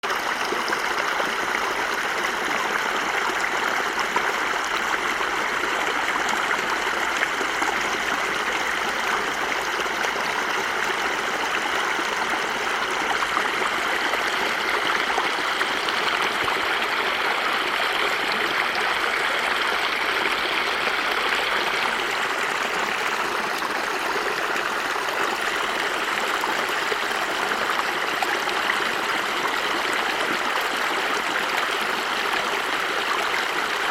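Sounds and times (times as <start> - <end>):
water running over rocks: 0.0 - 33.9.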